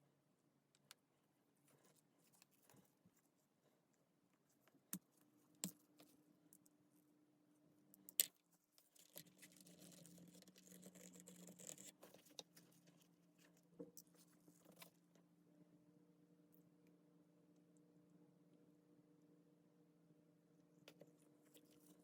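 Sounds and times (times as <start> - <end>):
faint low hum: 0.0 - 22.0
scratchy rustling and scraping: 8.6 - 15.0.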